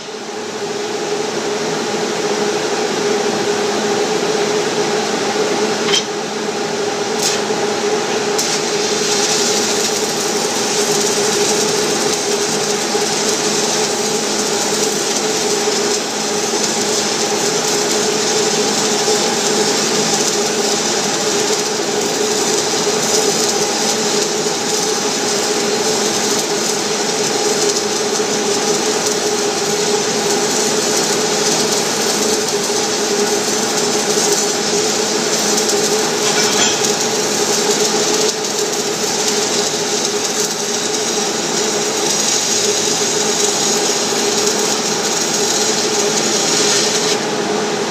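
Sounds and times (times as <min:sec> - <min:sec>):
steady hum: 0:00.0 - 0:30.6
welding arc crackling: 0:05.1 - 0:47.9.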